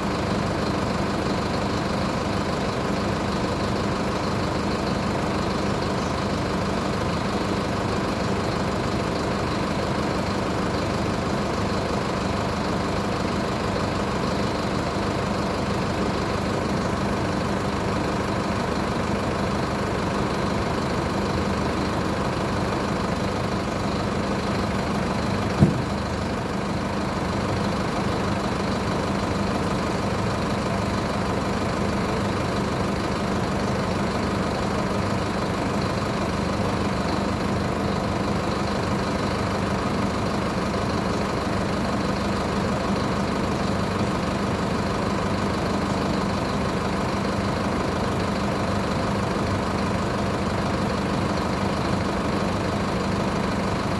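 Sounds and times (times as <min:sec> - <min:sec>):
bus diesel engine idling: 0:00.0 - 0:53.9
short knock: 0:25.5 - 0:26.1.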